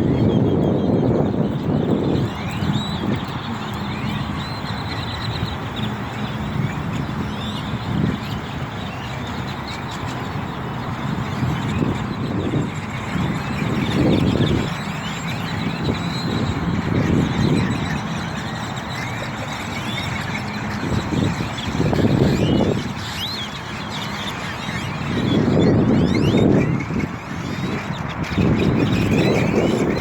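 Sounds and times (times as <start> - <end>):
flock of birds chirping: 0.0 - 30.0.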